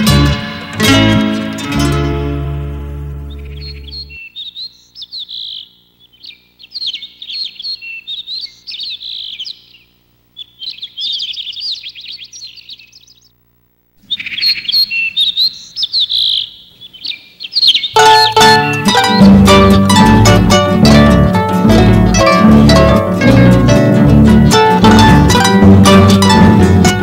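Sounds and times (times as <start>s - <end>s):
songbird twittering: 3.2s - 13.4s, 14.0s - 22.8s.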